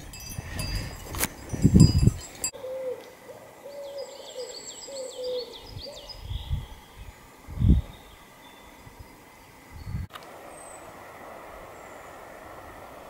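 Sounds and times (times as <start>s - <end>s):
small birds chirping: 0.0s - 10.9s
bird low hooting call: 2.6s - 9.0s.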